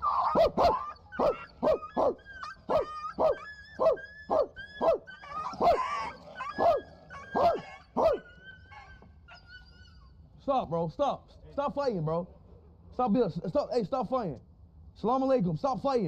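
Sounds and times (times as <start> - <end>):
dogs barking in a fight: 0.0 - 9.8
dogs yelping and whining: 0.0 - 10.3.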